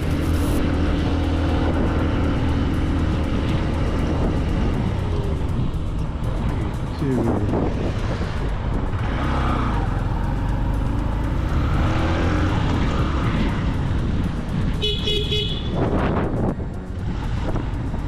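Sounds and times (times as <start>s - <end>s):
road traffic noise: 0.0s - 18.0s
car horn honking: 14.8s - 15.9s.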